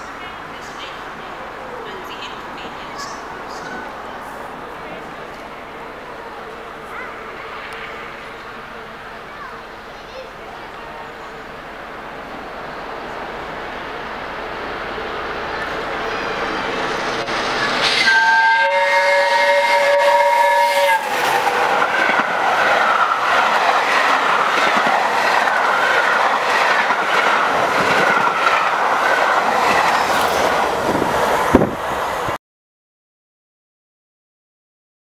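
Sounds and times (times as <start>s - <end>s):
steam locomotive whistle chord: 16.0s - 21.5s
train wheels clattering on rails: 20.8s - 31.8s.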